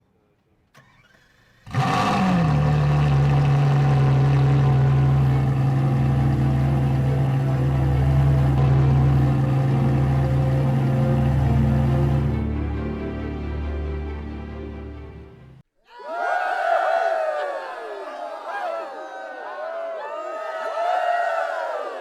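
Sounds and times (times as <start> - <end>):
engine starting and running: 0.7 - 15.6.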